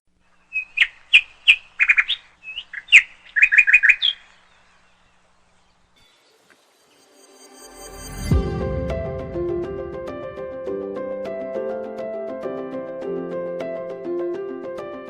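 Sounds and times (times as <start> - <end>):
songbird chirping: 0.1 - 8.2.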